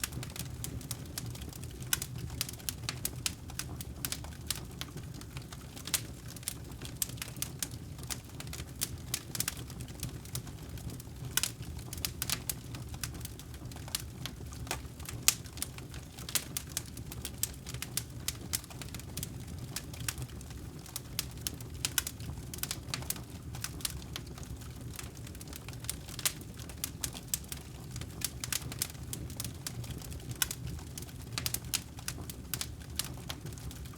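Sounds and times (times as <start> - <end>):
fire pops and snaps: 0.0 - 33.9
low rumble of burning: 0.0 - 33.9.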